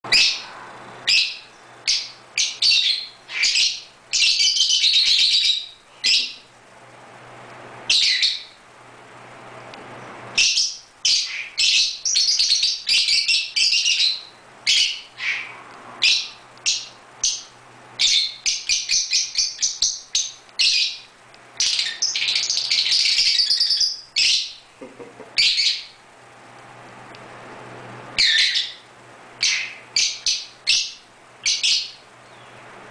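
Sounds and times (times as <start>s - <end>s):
lovebirds chirping: 0.0s - 6.6s, 7.9s - 8.7s, 9.9s - 24.7s, 25.3s - 26.1s, 28.1s - 32.8s.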